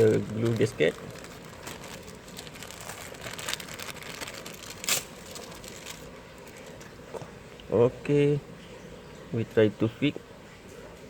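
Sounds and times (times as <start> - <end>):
gasket crinkling: 0.0 - 7.4.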